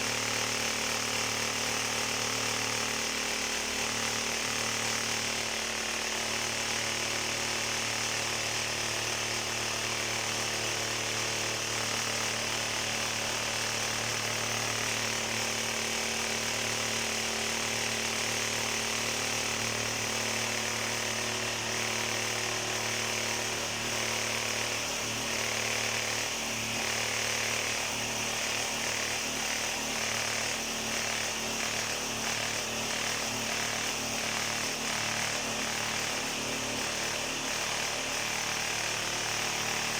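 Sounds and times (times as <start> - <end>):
power tool motor running: 0.0 - 39.9.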